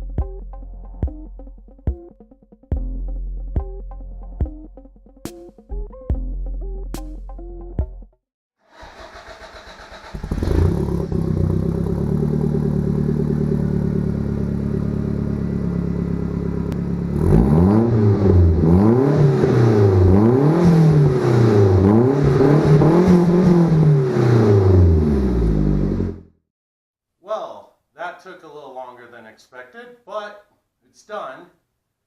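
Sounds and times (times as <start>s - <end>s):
engine starter cranking: 8.7s - 11.5s
car engine idling: 8.8s - 17.2s
car engine revving: 8.8s - 26.4s.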